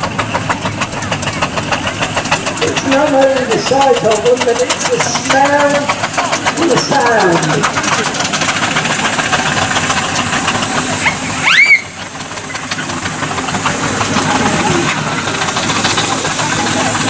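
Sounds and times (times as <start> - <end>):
steam engine hissing: 0.0 - 17.0
rising steam whistle blast: 11.1 - 12.0.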